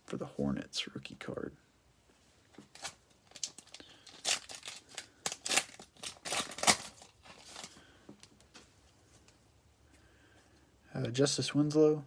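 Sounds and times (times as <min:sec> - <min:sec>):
plastic wrapper crinkling and tearing: 0:02.6 - 0:08.5.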